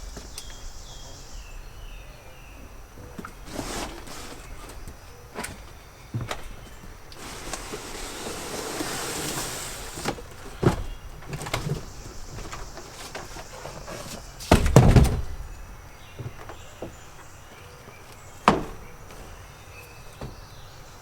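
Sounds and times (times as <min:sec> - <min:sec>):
cardboard scraping and sliding: 0:03.4 - 0:04.8, 0:07.2 - 0:10.9.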